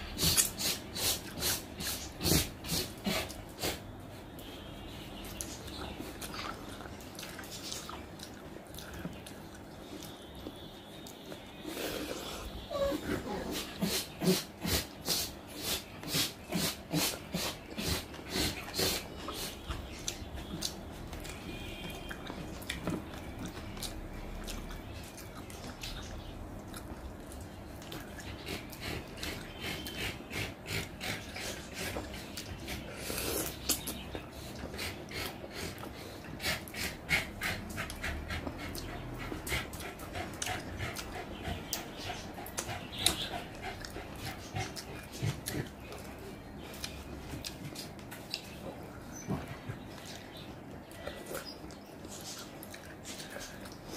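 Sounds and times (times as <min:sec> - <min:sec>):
wet chewing and lip smacking: 0:05.3 - 0:11.5, 0:15.1 - 0:36.8, 0:37.6 - 0:53.9
dog whining faintly: 0:11.8 - 0:14.1.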